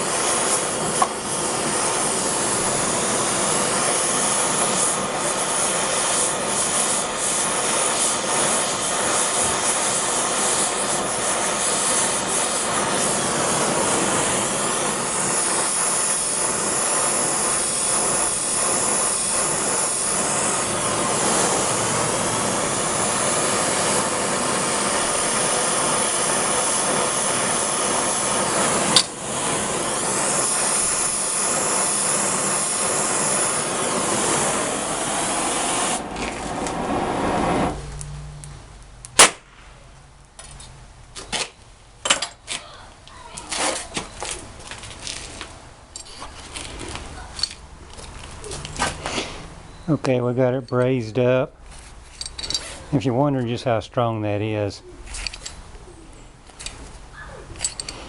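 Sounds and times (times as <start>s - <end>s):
gas torch flame rushing: 0.0s - 40.0s, 46.4s - 50.3s.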